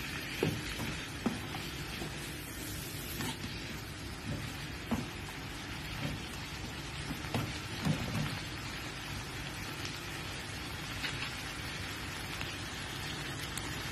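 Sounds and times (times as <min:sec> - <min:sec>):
food sizzling in a hot pan: 0:00.0 - 0:13.9
wooden spatula knocking pan: 0:00.2 - 0:02.3, 0:04.1 - 0:08.5.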